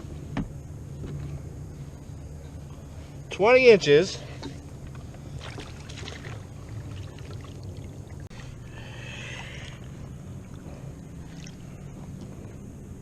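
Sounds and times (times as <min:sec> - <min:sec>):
steady low rumble: 0:00.0 - 0:13.0
water trickling and lapping: 0:03.9 - 0:12.9.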